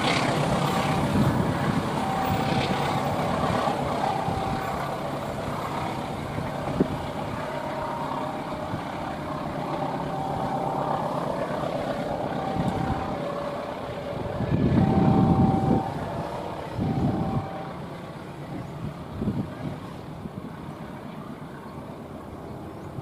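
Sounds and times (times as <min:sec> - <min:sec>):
high squeal tones: 0:00.0 - 0:17.8.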